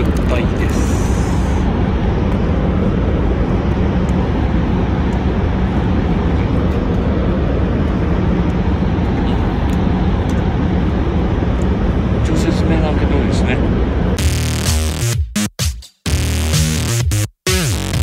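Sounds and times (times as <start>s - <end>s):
train cabin rumble: 0.0s - 14.2s
constant hum: 0.0s - 15.1s.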